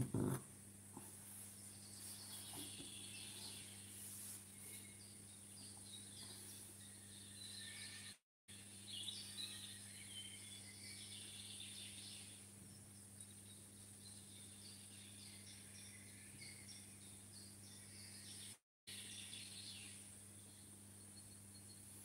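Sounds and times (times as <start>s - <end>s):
small birds chirping: 1.0s - 22.0s
low hum and hiss: 18.9s - 22.0s.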